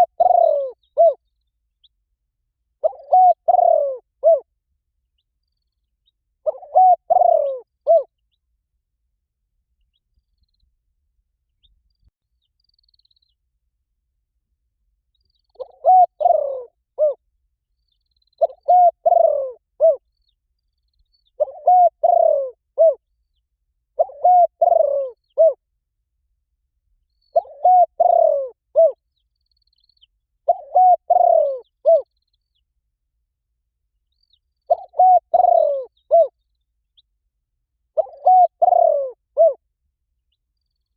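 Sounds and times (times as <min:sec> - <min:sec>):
dove cooing: 0:00.0 - 0:01.2, 0:02.8 - 0:04.5, 0:06.4 - 0:08.1, 0:15.5 - 0:17.2, 0:18.4 - 0:20.0, 0:21.4 - 0:23.0, 0:24.0 - 0:25.6, 0:27.3 - 0:29.0, 0:30.4 - 0:32.1, 0:34.7 - 0:36.4, 0:38.0 - 0:39.6.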